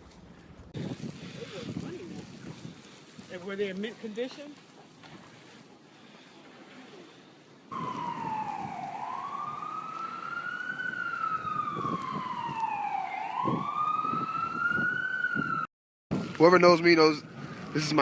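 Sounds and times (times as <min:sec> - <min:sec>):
faint hiss: 0:00.8 - 0:09.7
emergency vehicle siren wailing: 0:07.7 - 0:15.7.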